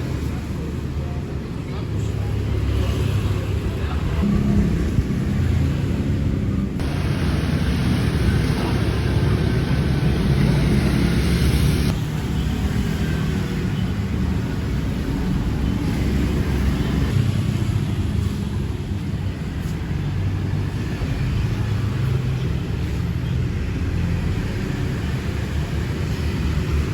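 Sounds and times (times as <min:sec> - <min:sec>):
low vehicle rumble: 0:03.3 - 0:12.0.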